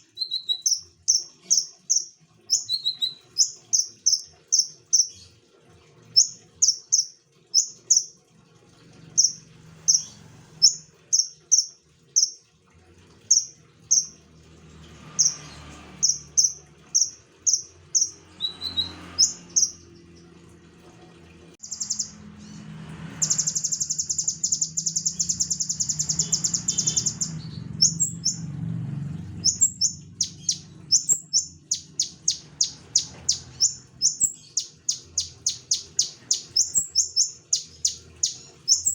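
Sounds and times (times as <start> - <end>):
bird rattling trill: 0.0 - 5.2, 6.1 - 8.1, 9.1 - 12.4, 13.3 - 14.2, 15.1 - 19.8, 23.2 - 28.5, 29.4 - 38.9
bird singing high clear notes: 0.0 - 5.3, 6.1 - 8.2, 9.1 - 12.4, 13.3 - 14.2, 16.0 - 20.3, 21.6 - 22.3, 23.2 - 28.5, 29.4 - 38.9.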